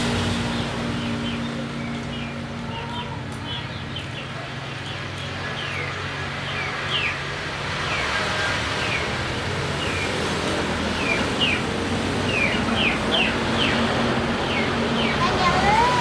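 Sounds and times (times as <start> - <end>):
background rush of noise: 0.0 - 16.0
bird chirping: 10.9 - 16.0.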